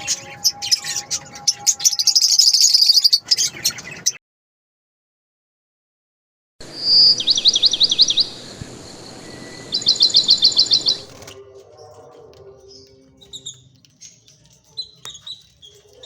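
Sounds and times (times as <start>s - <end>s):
bird whistling and chirping: 0.0s - 3.8s, 6.7s - 11.3s.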